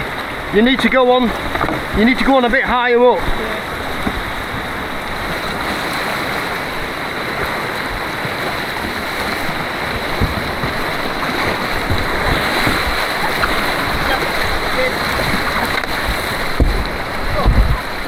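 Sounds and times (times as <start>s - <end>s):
white water rushing: 0.0s - 18.0s.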